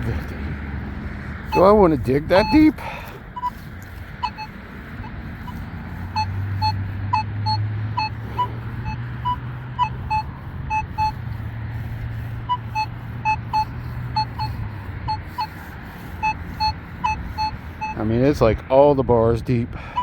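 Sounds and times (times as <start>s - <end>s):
metal detector short beeps: 1.5s - 3.6s, 4.2s - 11.4s, 12.4s - 18.3s.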